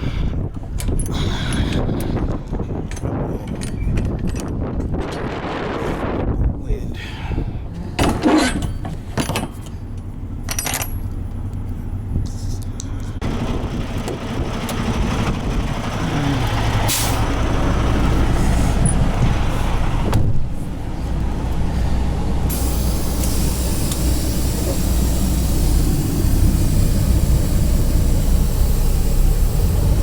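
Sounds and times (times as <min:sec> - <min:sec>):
diesel truck engine running: 0:09.7 - 0:30.0
air brake hiss: 0:16.9 - 0:17.3, 0:22.5 - 0:30.0.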